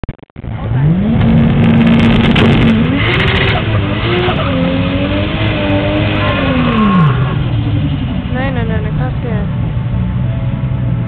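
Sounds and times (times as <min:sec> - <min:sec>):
car engine revving hard: 0:00.5 - 0:08.4.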